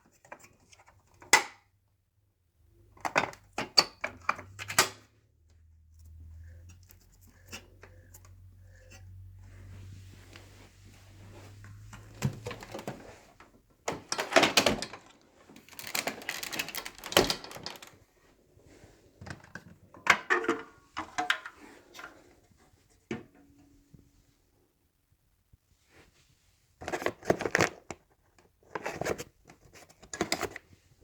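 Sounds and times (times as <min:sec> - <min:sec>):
hard parts clicking and rattling: 0:13.9 - 0:18.0.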